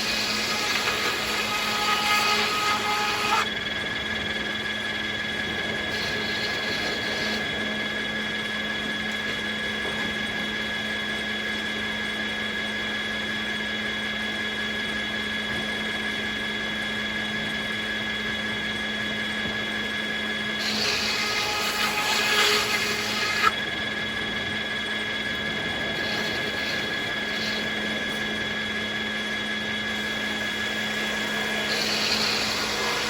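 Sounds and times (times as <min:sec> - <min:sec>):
sawmill machine hum: 0:00.0 - 0:33.0.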